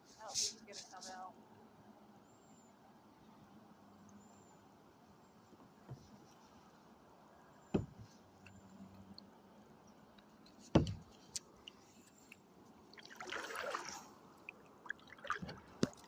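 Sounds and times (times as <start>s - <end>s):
water splash and trickle: 7.7s - 16.0s
paddle knocking on kayak: 7.8s - 8.0s, 10.7s - 11.1s.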